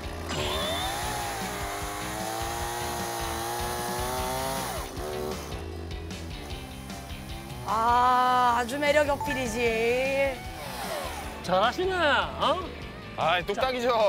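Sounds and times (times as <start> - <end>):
chainsaw cutting wood: 0.0 - 8.8, 10.1 - 11.5.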